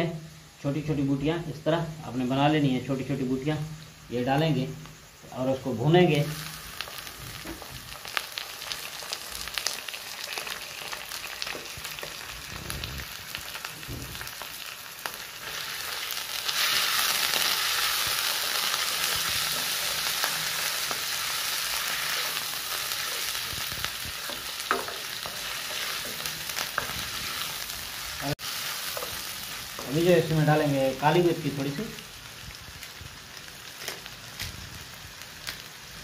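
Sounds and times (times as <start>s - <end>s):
chicken and onion sizzling in oil: 0.1s - 36.0s
spatula scraping and tapping pan: 24.2s - 27.0s.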